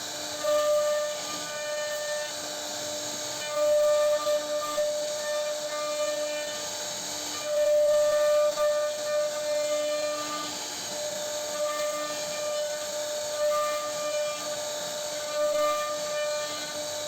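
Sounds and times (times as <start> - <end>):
bit cutting wood hiss: 0.0 - 17.0
router spindle whining: 0.0 - 17.0.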